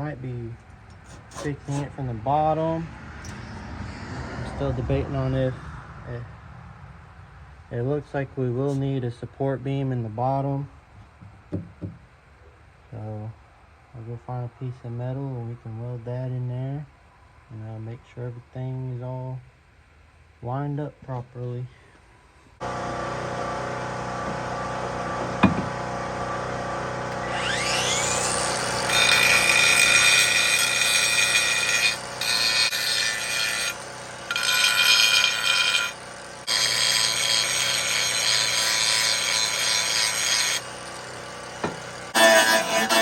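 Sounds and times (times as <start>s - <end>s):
angle grinder grinding metal: 0.9s - 2.1s, 22.6s - 43.0s
steady machine hum: 22.6s - 28.9s, 40.6s - 43.0s.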